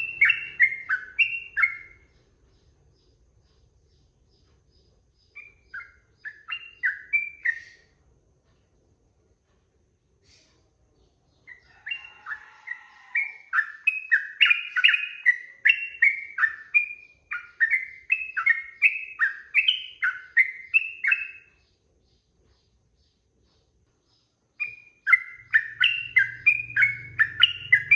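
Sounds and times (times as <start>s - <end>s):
bird singing bubbly whistled notes: 0.0s - 2.0s, 5.4s - 7.9s, 13.2s - 21.5s, 24.6s - 27.9s.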